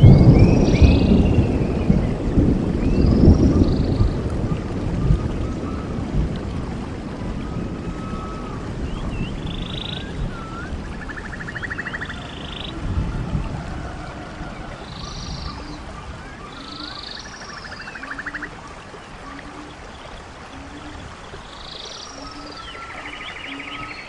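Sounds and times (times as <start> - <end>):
frogs calling: 9.2 - 24.0.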